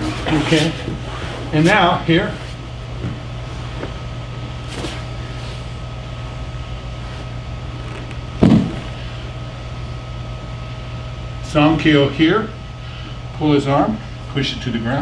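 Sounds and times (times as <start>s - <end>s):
low mechanical hum: 0.0s - 15.0s
loud thump: 8.4s - 9.3s.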